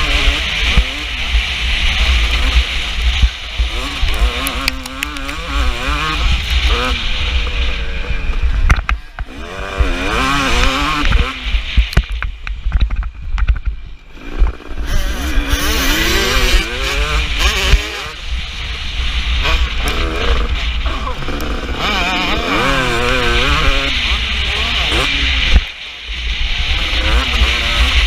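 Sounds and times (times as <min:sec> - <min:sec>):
motocross bike engine revving: 0:00.0 - 0:12.1, 0:14.0 - 0:28.0.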